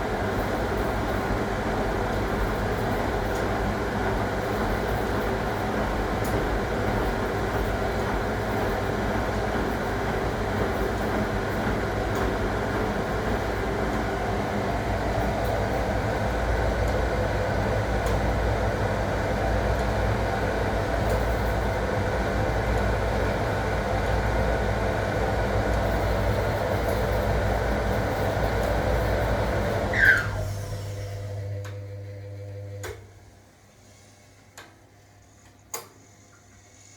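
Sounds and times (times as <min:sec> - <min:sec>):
washing machine running: 0:00.0 - 0:35.0
short squeak: 0:29.9 - 0:30.4.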